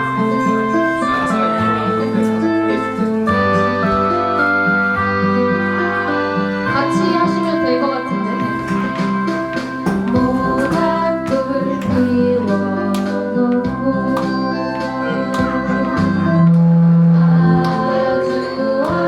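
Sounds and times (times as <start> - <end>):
electronic organ: 0.0 - 19.0
guitar: 0.0 - 19.0
woman singing a folk ballad: 5.1 - 9.2, 10.0 - 19.0.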